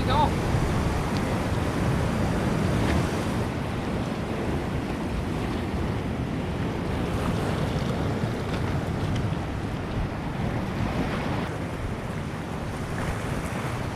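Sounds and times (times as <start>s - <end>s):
surf at sea's edge: 0.0s - 13.9s
wind rumbling on microphone: 0.0s - 13.9s.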